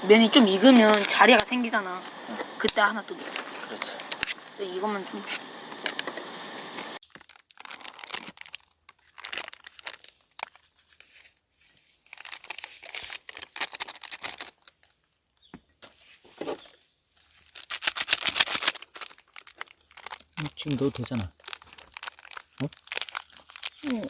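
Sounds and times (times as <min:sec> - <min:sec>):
plastic wrappers crackling: 0:07.0 - 0:15.1, 0:16.5 - 0:24.0.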